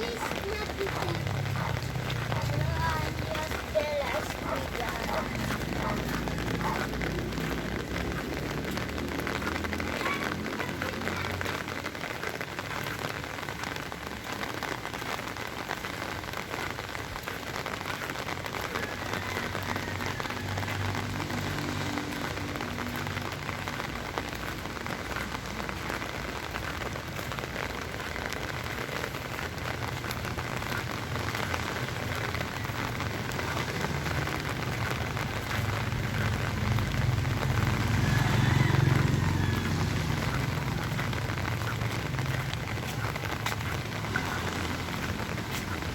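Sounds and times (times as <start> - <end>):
heavy rain splattering: 0.0 - 45.9.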